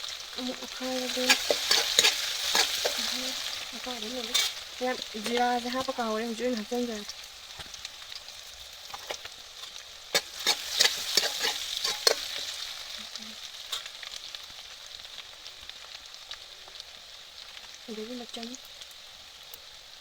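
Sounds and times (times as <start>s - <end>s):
seeds sizzling in hot oil: 0.0s - 20.0s
spatula scraping a pan: 0.4s - 6.7s, 7.5s - 13.0s, 13.7s - 14.1s.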